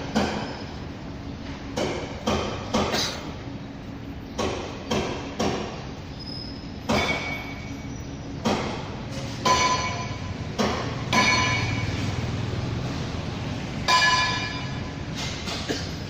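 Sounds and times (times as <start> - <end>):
metal clanks with bell-like ring: 6.9 - 7.7, 9.5 - 10.3, 11.1 - 12.0, 13.9 - 14.9.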